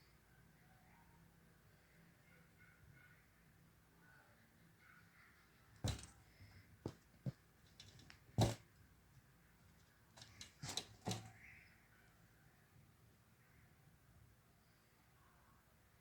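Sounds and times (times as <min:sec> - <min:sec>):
objects clicking and knocking: 0:05.9 - 0:06.2, 0:06.9 - 0:08.6, 0:10.2 - 0:11.4.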